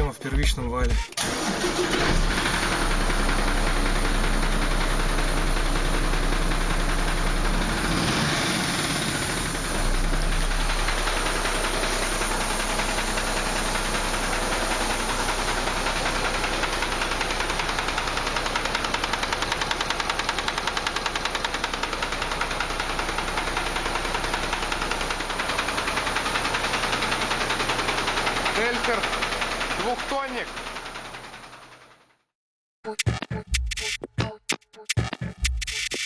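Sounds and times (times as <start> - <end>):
diesel truck engine idling: 1.2 - 31.9
rapid rhythmic knocking: 33.0 - 36.0.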